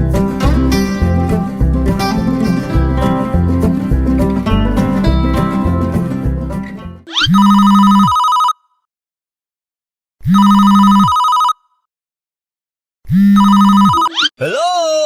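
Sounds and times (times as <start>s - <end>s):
telephone ringing: 7.1s - 8.6s, 10.3s - 11.6s, 13.3s - 14.3s.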